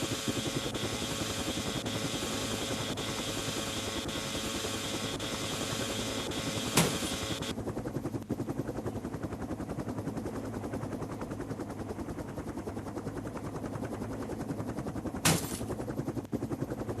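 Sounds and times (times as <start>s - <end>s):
helicopter rotor thudding: 0.0s - 7.5s, 15.0s - 15.9s.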